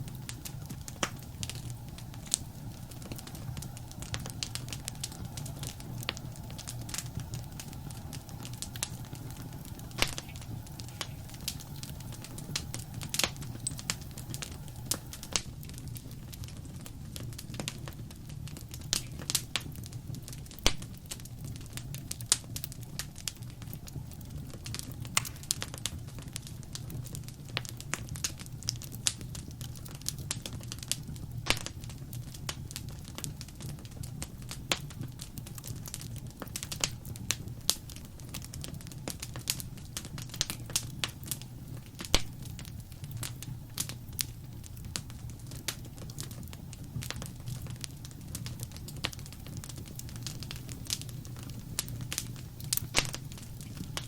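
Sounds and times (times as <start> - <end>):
low rumble of flames: 0.0 - 54.0
wood fire crackling: 0.0 - 54.0.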